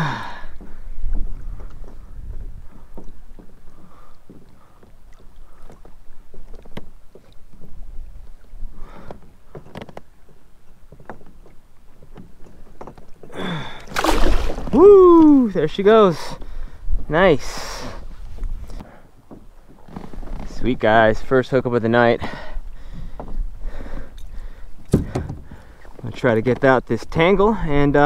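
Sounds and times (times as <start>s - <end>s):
wind buffeting microphone: 0.6s - 4.4s
knocks and clicks handling gear: 24.9s - 26.1s.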